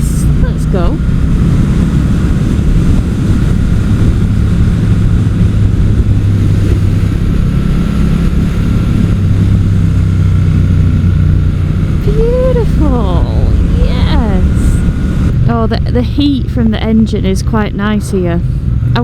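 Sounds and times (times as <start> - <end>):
motorcycle engine cruising: 0.0 - 19.0
wind rush: 0.0 - 19.0.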